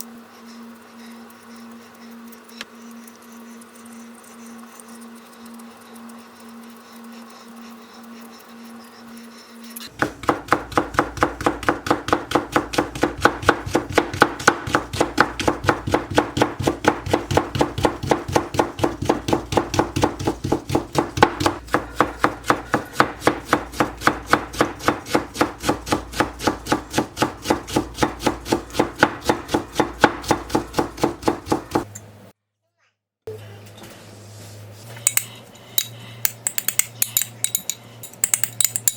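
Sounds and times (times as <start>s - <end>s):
knife chopping on wooden board: 10.0s - 31.9s.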